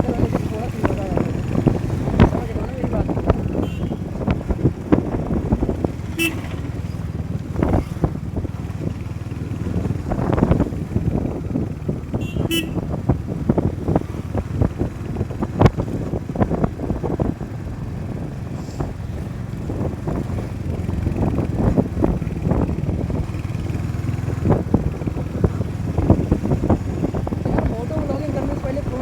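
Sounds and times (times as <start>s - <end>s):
motorcycle engine rumble: 0.0s - 29.0s
wind buffeting microphone: 0.0s - 29.0s
horn toot: 3.5s - 4.1s, 6.0s - 6.6s, 12.2s - 12.8s.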